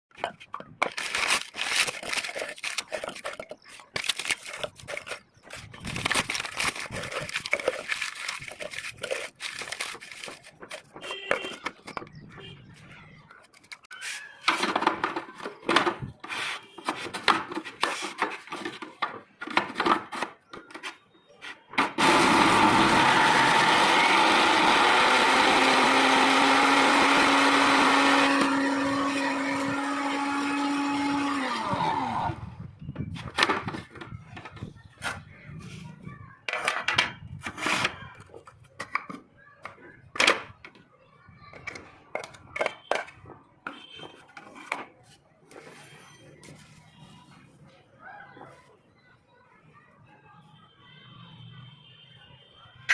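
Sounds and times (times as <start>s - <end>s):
paper rustling: 0.2s - 12.0s, 13.4s - 21.0s
electric mixer grinder running: 22.0s - 32.4s.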